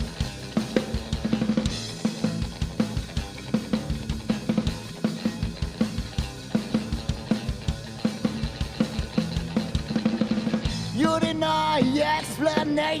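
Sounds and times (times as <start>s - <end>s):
drum kit fast beat: 0.0s - 13.0s
rock band playing: 0.0s - 13.0s.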